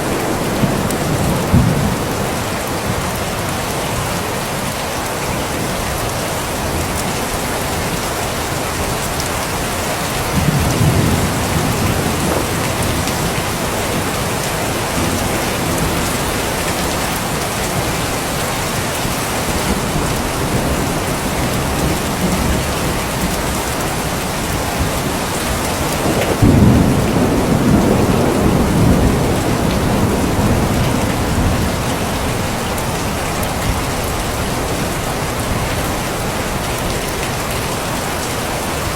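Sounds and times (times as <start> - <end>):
thunder rolling: 0.0 - 3.0, 10.2 - 18.0, 19.5 - 35.6
heavy rain falling: 0.0 - 38.9.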